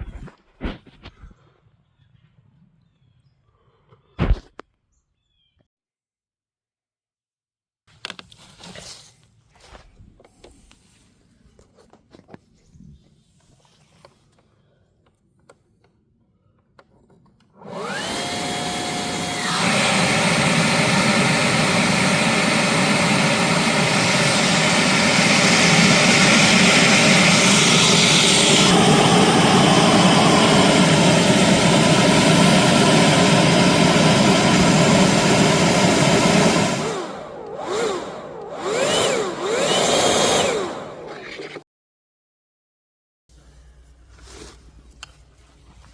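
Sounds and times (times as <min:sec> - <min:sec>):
electric air blower whining: 0:17.6 - 0:41.6
rush of blown air: 0:19.5 - 0:39.8.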